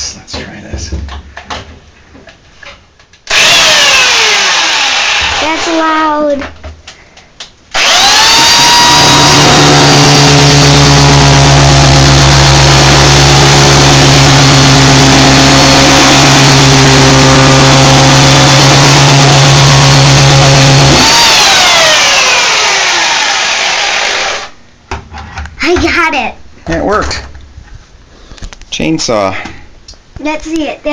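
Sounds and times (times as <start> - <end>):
chainsaw revving and cutting: 3.3 - 5.7, 7.8 - 24.5.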